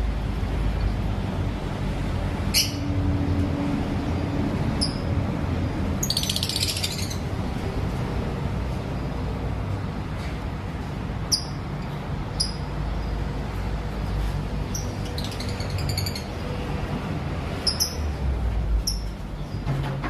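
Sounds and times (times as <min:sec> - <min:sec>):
lovebirds chirping: 0:06.0 - 0:07.3.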